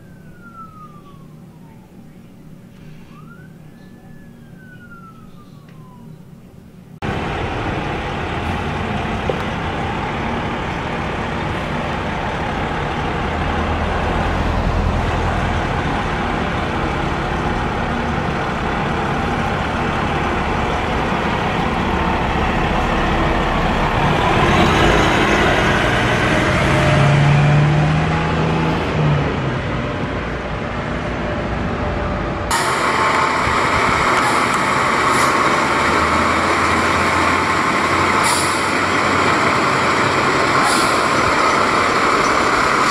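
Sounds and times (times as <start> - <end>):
traffic noise: 0.0 - 42.9
diesel engine running: 6.9 - 42.9
hissy vehicle sound: 37.6 - 42.9.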